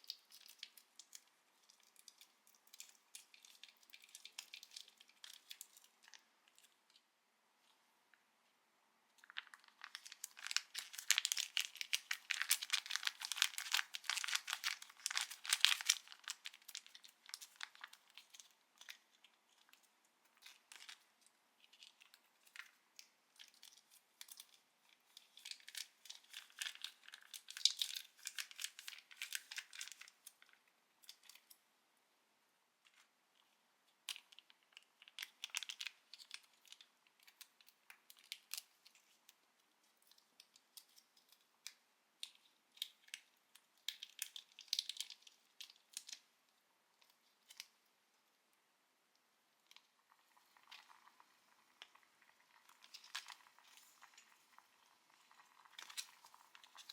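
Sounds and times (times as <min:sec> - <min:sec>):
plastic packaging crinkling: 0:00.0 - 0:06.7, 0:09.2 - 0:31.5, 0:34.1 - 0:39.2, 0:43.9 - 0:46.2, 0:49.7 - 0:56.9.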